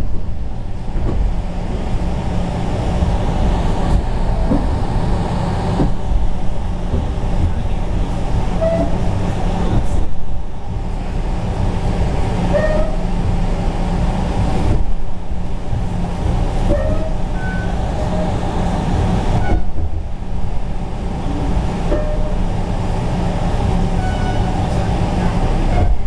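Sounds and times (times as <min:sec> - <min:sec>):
train rumbling on rails: 0:00.0 - 0:26.0
train wheels squealing: 0:12.5 - 0:13.1, 0:16.7 - 0:18.4, 0:24.0 - 0:24.6.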